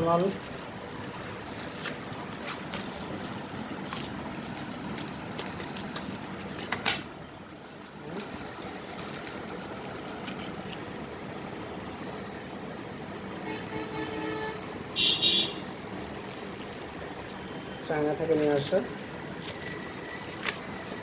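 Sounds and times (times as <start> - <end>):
steady background noise: 0.0 - 21.0.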